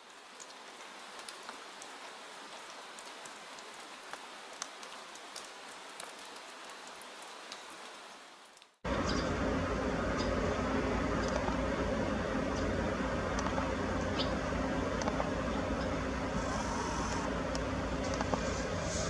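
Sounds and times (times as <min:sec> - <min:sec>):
rain pattering: 0:00.0 - 0:19.0
low rumble: 0:08.9 - 0:19.0.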